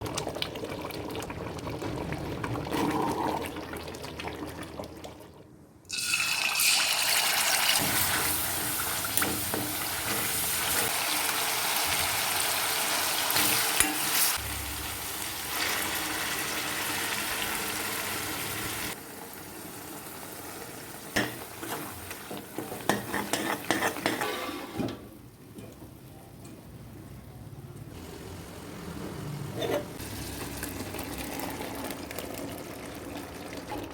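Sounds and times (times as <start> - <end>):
loud frying sizzle: 5.9 - 24.6, 28.0 - 33.7.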